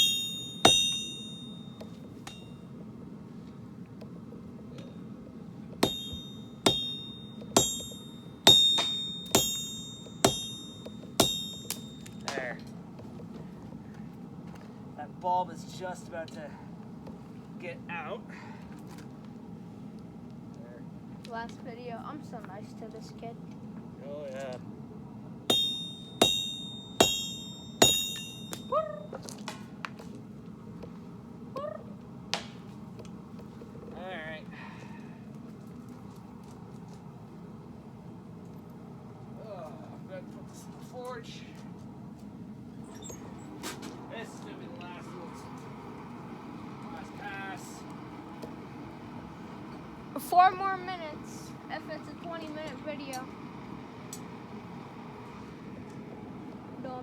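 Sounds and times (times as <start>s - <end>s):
hammer striking steel on anvil: 0.0s - 2.6s, 5.8s - 12.5s, 25.5s - 28.7s.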